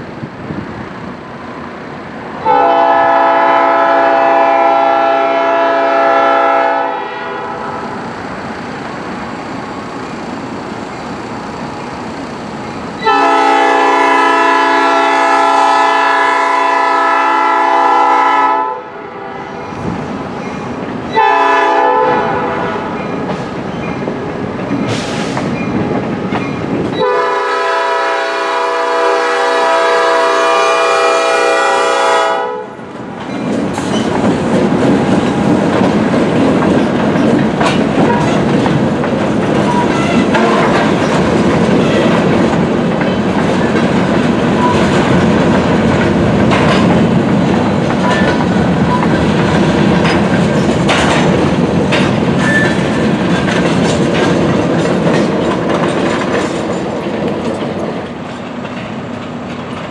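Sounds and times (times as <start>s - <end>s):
train horn blasts: 2.4s - 8.0s, 13.0s - 19.6s, 21.1s - 23.0s, 27.0s - 32.8s, 39.8s - 40.8s
train wheels clacking over rail joints: 19.8s - 30.6s, 32.9s - 59.9s.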